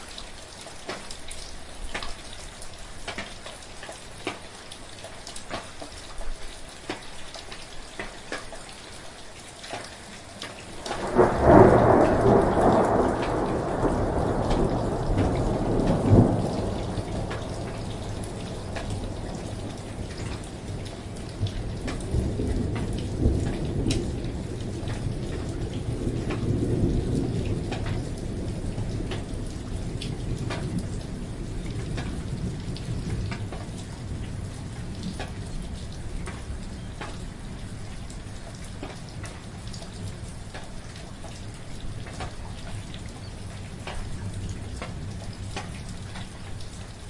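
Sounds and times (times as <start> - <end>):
steady rain: 0.0 - 47.0
rolling thunder: 10.6 - 47.0.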